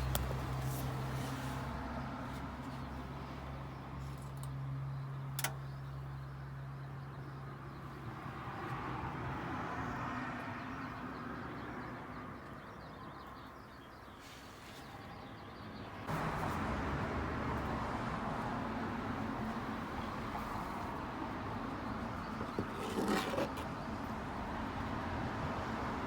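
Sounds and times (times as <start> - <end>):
engine humming: 16.1 - 26.0.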